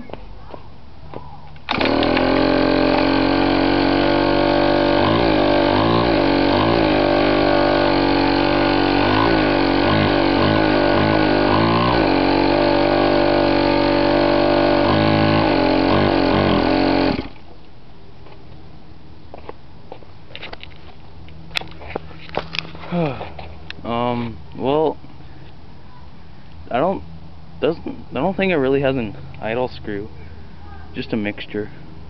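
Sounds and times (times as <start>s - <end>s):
two-stroke engine revving: 1.7s - 17.4s.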